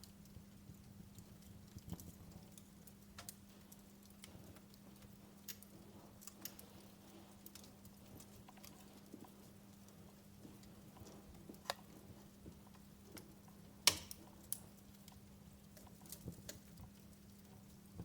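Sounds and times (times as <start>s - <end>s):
wood fire crackling: 0.0s - 18.0s
sharp fire cracks: 13.1s - 17.8s.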